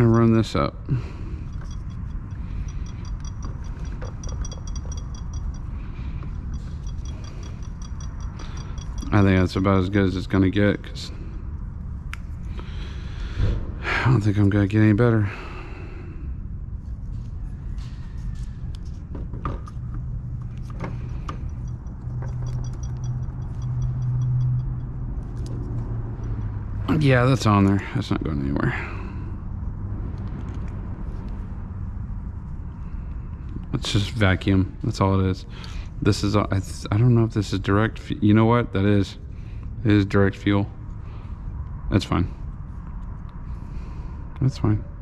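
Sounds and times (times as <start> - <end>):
steady low hum: 0.0 - 45.0
ratchet tool clicking: 1.5 - 5.7, 6.4 - 9.2, 20.6 - 26.5.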